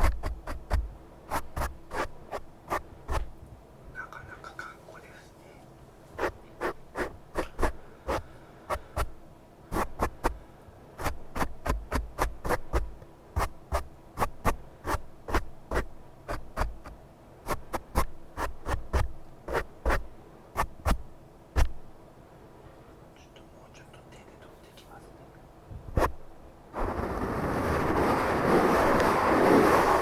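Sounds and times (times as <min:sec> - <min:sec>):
crisp taps and scratches: 0:00.0 - 0:03.3, 0:06.2 - 0:08.2, 0:09.8 - 0:10.4, 0:11.0 - 0:21.0, 0:21.6 - 0:21.8, 0:26.0 - 0:26.2.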